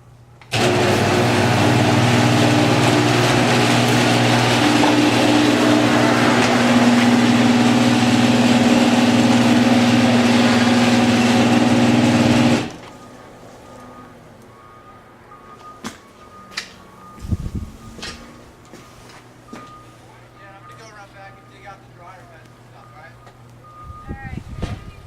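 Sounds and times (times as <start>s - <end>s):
engine running: 0.5s - 14.7s.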